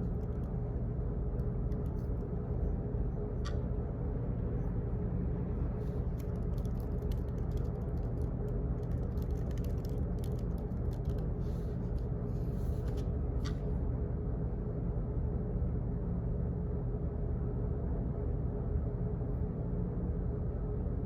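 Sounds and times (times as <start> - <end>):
low rumble and hum: 0.0 - 21.0
light clicks and taps: 5.8 - 12.1.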